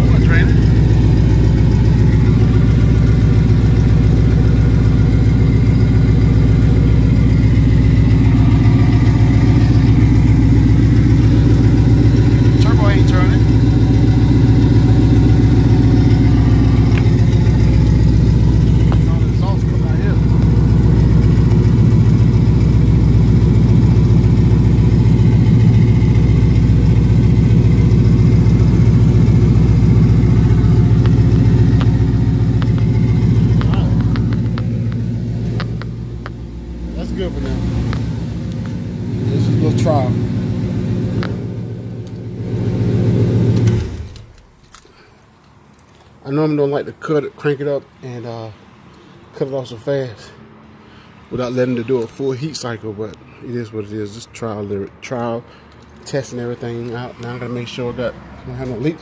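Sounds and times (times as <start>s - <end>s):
turbocharged engine idling: 0.0s - 44.6s.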